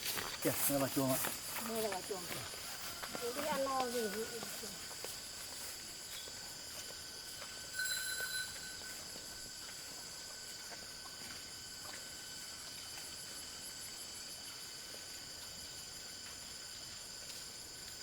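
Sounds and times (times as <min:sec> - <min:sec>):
fast pulsing insect trill: 0:00.0 - 0:10.6
insects chirping: 0:00.0 - 0:18.0
loud insect chirp: 0:00.0 - 0:18.0.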